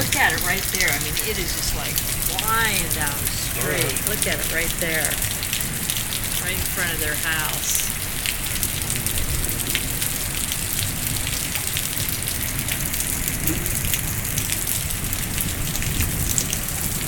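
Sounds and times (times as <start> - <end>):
crisp raindrop taps: 0.0 - 17.0
heavy rain pouring: 0.0 - 17.0.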